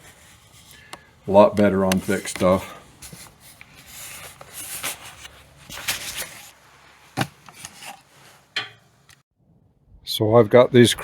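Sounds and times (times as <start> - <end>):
rubbing and scraping: 0.0 - 8.5.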